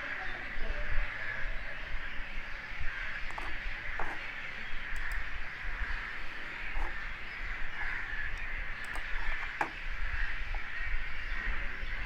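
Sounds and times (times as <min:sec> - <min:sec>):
short clicks: 0:08.3 - 0:09.8.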